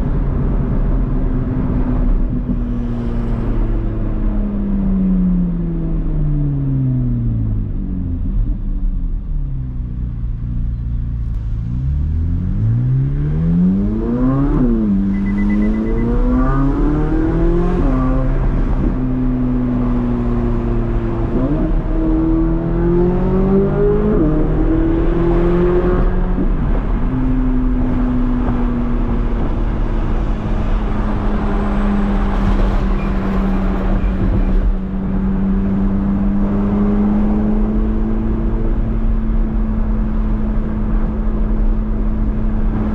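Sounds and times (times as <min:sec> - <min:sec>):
car engine revving: 0:11.2 - 0:42.9.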